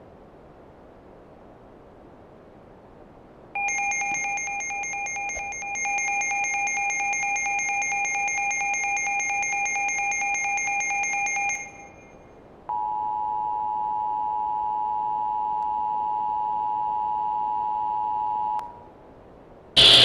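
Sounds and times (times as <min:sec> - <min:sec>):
rapid electronic alert beeps: 0:19.8 - 0:20.0
two-tone alert drone: 0:19.8 - 0:20.0.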